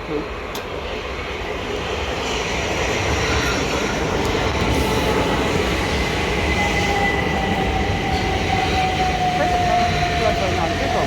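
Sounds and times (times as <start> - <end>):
high train whine: 0.0 - 11.0
train wheels and motors rumbling: 0.0 - 11.0.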